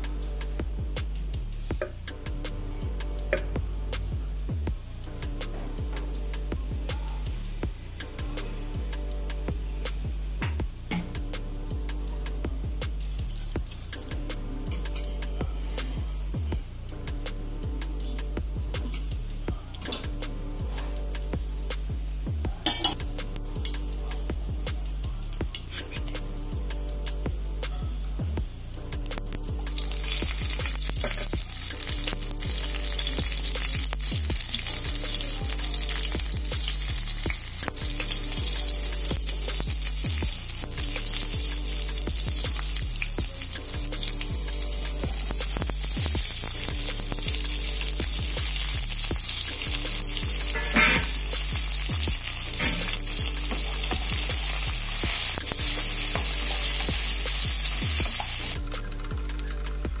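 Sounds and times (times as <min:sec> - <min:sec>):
vegetables sizzling in hot oil: 0:29.1 - 0:59.7.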